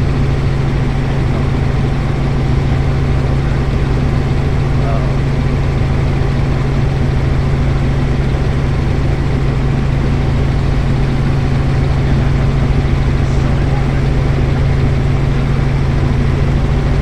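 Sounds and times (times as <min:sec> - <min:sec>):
helicopter engine and rotor drone: 0:00.0 - 0:17.0.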